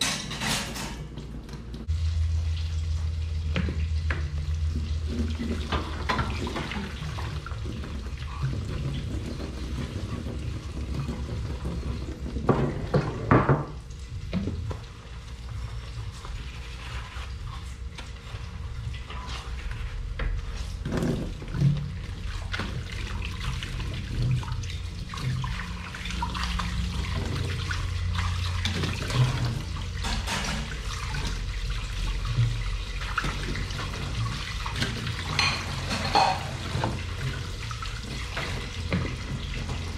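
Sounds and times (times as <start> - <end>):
dishes and pans clinking: 0.0 - 1.2, 28.8 - 30.8, 34.8 - 37.1
tap water running into sink: 1.4 - 16.9, 18.7 - 39.9.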